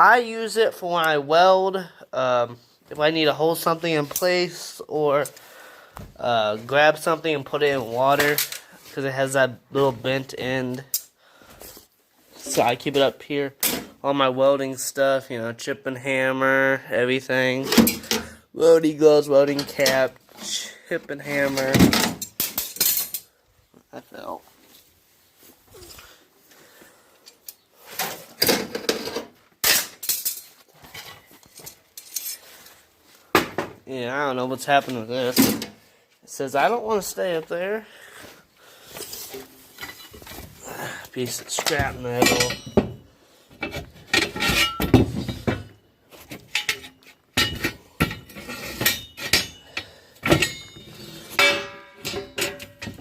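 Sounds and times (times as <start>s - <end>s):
metal tools clattering: 17.7s - 18.4s, 19.5s - 20.1s, 21.4s - 23.4s, 27.3s - 32.8s, 38.9s - 40.6s, 41.3s - 53.0s
scrap metal clanking: 41.3s - 53.0s.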